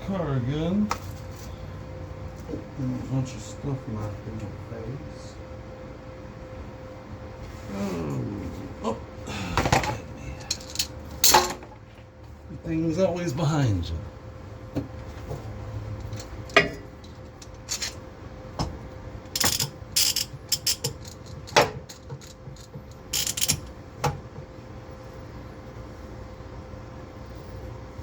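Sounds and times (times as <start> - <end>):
low steady hum: 0.0 - 28.0
metal tools clanking: 9.8 - 11.6, 16.0 - 18.0, 19.4 - 23.7.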